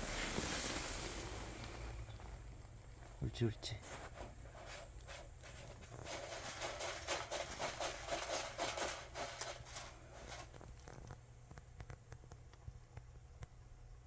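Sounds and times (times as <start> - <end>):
cat scratching in litter: 3.8 - 11.2.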